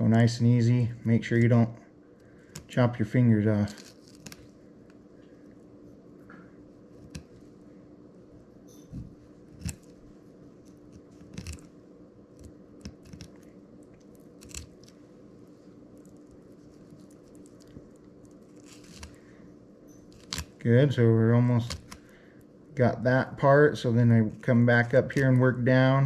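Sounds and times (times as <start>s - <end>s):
faint steady hum: 0.0s - 26.0s
knife crunching through fish bones: 3.6s - 4.5s, 9.5s - 10.0s, 10.8s - 11.7s, 12.4s - 15.0s, 16.0s - 19.2s, 20.1s - 20.6s.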